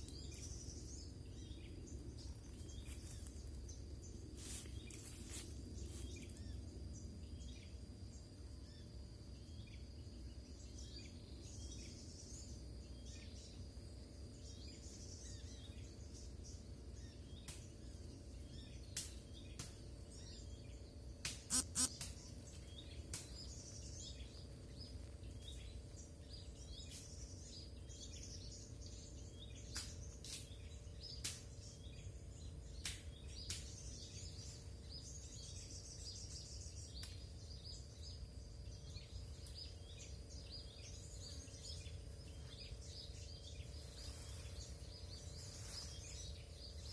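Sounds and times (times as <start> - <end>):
sharp clicks: 21.3 - 22.1
thin steady high tone: 21.5 - 21.9
faint bird chirps: 21.5 - 38.2.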